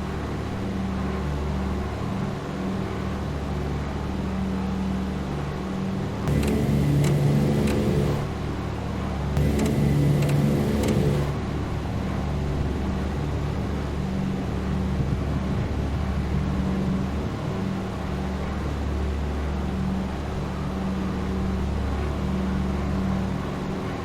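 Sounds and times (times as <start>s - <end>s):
sharp ticks: 6.3s - 8.2s, 9.4s - 11.3s
aircraft engines droning: 6.3s - 8.5s, 9.4s - 11.4s.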